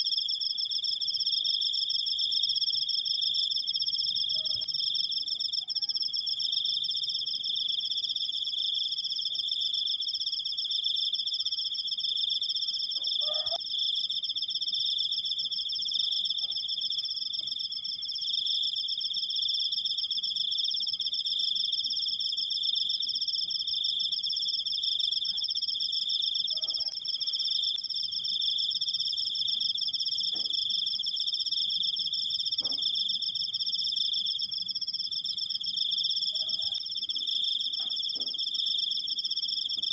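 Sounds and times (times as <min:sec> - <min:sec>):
crickets trilling: 0:00.1 - 0:39.9.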